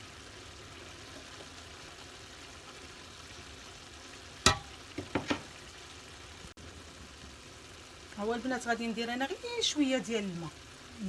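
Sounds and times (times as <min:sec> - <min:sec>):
food sizzling in a pan: 0:00.0 - 0:11.0
knocks in a pan: 0:04.4 - 0:05.5.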